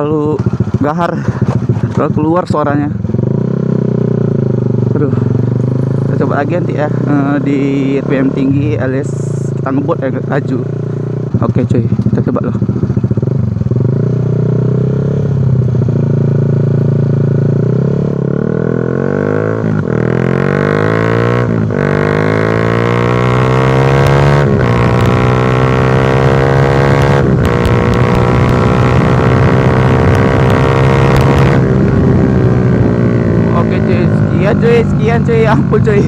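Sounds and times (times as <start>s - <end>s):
motorcycle engine accelerating: 0.0s - 36.0s.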